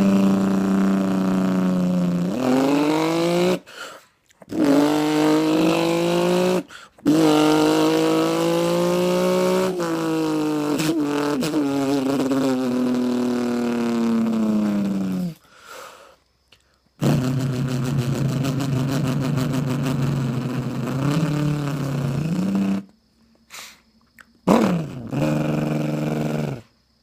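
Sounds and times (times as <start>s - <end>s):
man imitating engine with mouth: 0.0s - 15.8s, 16.5s - 26.8s.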